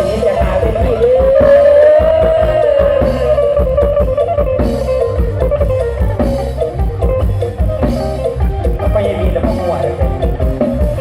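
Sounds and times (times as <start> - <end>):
band music with plucked lead: 0.0 - 11.0.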